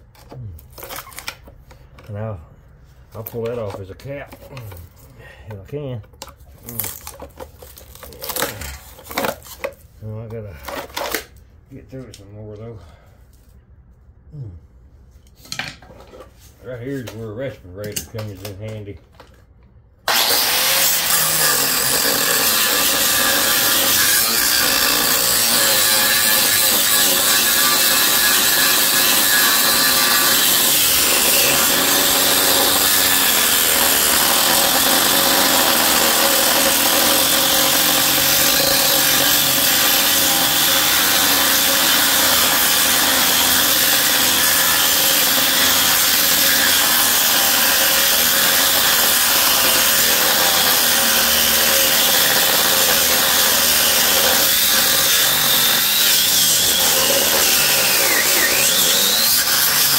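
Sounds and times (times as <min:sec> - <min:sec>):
reciprocating saw cutting metal: 0:20.1 - 0:59.9.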